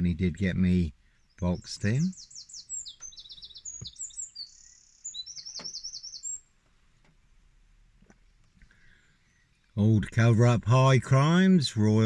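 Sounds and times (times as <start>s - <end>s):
small bird singing trills: 1.0s - 6.6s, 8.2s - 9.8s.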